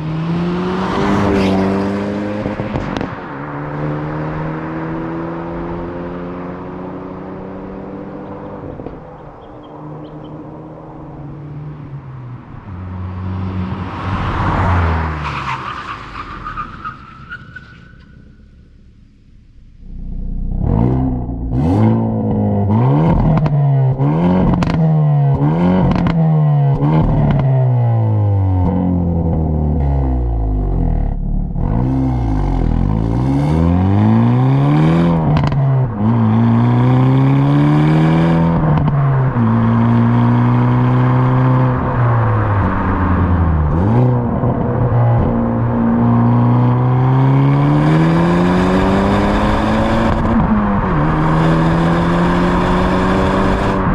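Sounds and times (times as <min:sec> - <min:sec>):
car engine revving hard: 0:00.0 - 0:03.0, 0:20.5 - 0:27.5, 0:31.6 - 0:53.9.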